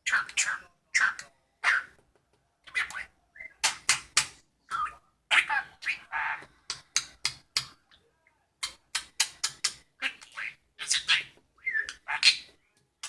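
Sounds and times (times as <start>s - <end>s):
budgerigar chattering: 4.7s - 6.4s.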